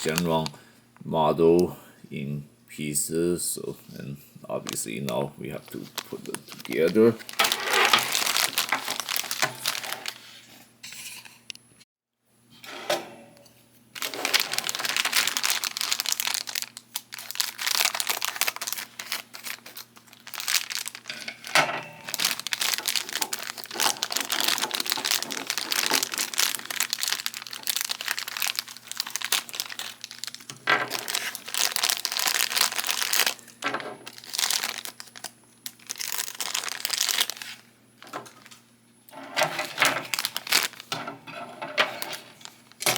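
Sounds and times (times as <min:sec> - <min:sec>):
packaging crinkling and tearing: 0:00.0 - 0:00.5, 0:04.6 - 0:10.5, 0:14.0 - 0:38.6, 0:39.2 - 0:41.1, 0:41.8 - 0:42.9.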